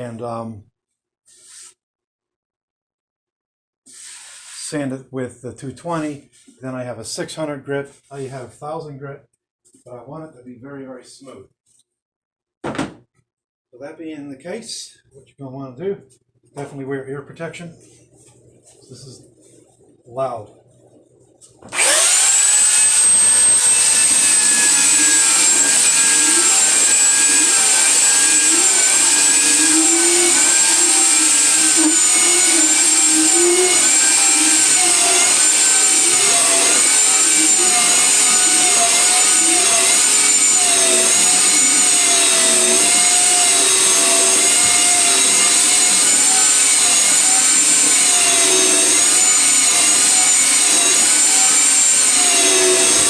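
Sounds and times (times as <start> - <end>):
power sander on wood: 21.7 - 53.0.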